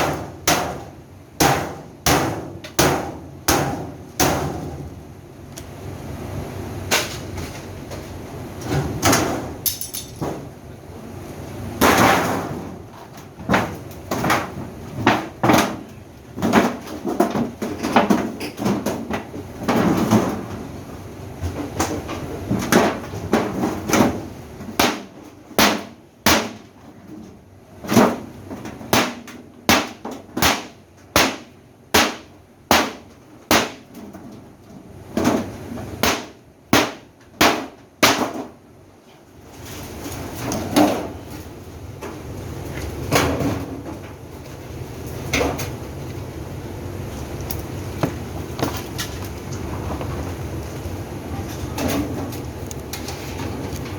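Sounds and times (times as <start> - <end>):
knocks and clanks on metal parts: 8.6 - 10.5, 11.8 - 20.6.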